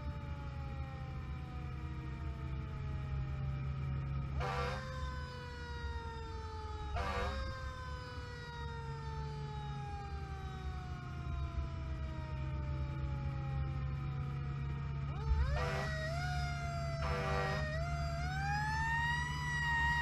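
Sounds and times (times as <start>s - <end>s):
siren winding down: 0.0s - 20.0s
vehicle engine rumble: 0.0s - 20.0s
short loud siren bursts: 4.4s - 5.8s, 6.8s - 8.0s, 15.1s - 20.0s.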